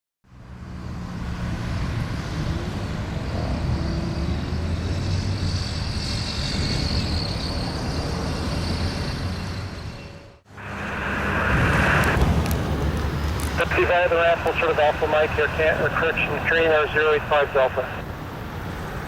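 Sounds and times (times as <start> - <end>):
jet engines rumbling: 0.8 - 19.0
high whine: 3.1 - 18.2.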